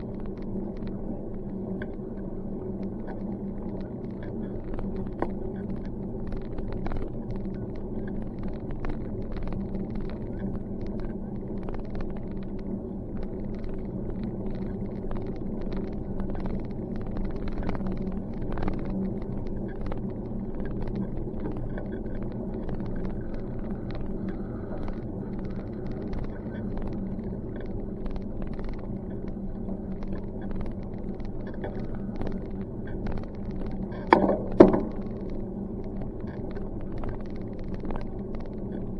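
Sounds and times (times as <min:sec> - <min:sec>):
bicycle rolling over pavement: 0:00.0 - 0:38.9
small rattles and clicks: 0:00.0 - 0:38.9
sharp knock: 0:34.1 - 0:35.0.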